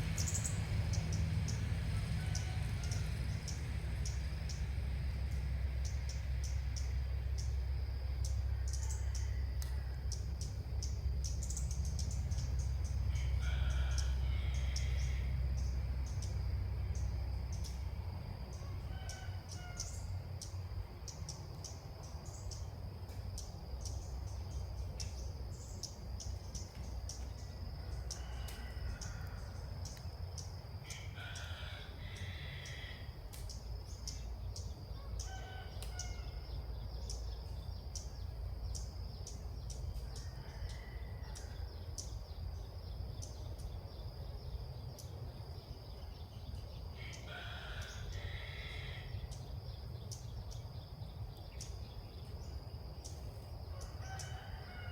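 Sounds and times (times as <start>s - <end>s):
high insect drone: 0.0s - 54.9s
rooster crowing: 1.8s - 3.6s, 8.4s - 10.2s, 13.0s - 16.2s, 18.5s - 20.2s, 27.3s - 30.0s, 30.8s - 33.2s, 34.5s - 36.8s, 40.0s - 42.1s, 46.9s - 49.3s, 53.6s - 54.9s.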